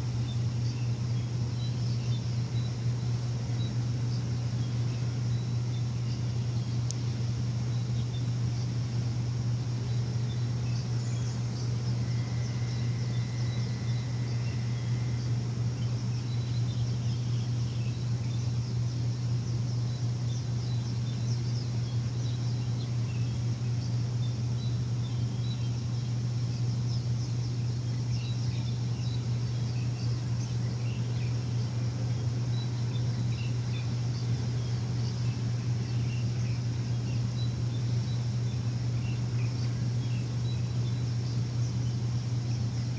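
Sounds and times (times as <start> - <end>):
birds chirping: 0.0 - 42.9
machine humming: 0.0 - 42.9
steady high tone: 11.6 - 15.7.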